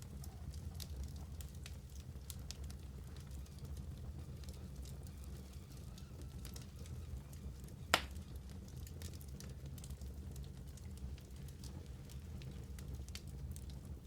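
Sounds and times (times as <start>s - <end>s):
wood fire crackling: 0.0s - 14.0s
sharp loud fire pop: 7.9s - 8.2s.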